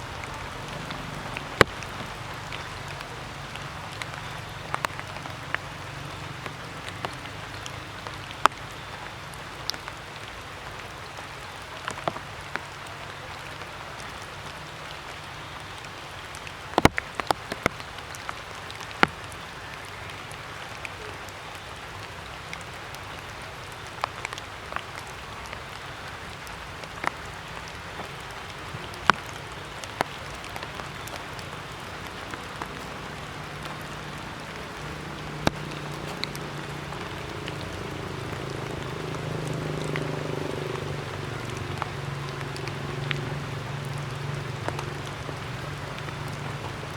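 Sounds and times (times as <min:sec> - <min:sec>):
water drops ticking on surfaces: 0:00.0 - 0:11.0, 0:14.4 - 0:46.9.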